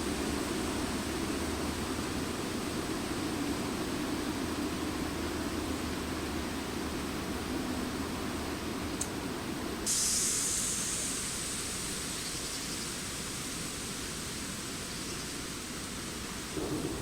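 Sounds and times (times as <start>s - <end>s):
steady noisy hiss: 0.0s - 17.0s
faint click: 9.0s - 9.2s.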